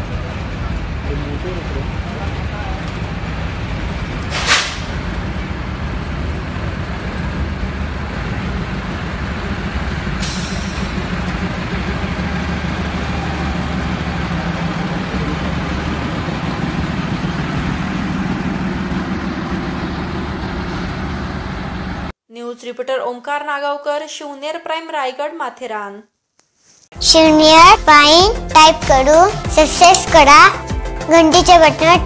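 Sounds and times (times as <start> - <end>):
diesel locomotive humming: 0.0 - 22.2
short hiss: 4.3 - 4.9, 10.2 - 10.9.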